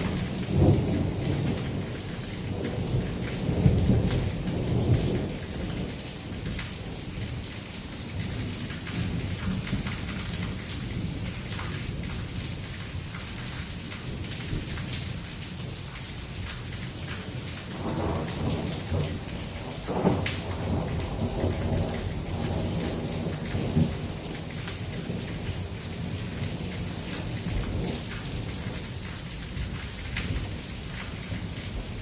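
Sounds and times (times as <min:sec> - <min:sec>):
thunder rumbling: 0:00.0 - 0:05.8, 0:17.7 - 0:28.8
heavy rain pouring: 0:00.0 - 0:32.0.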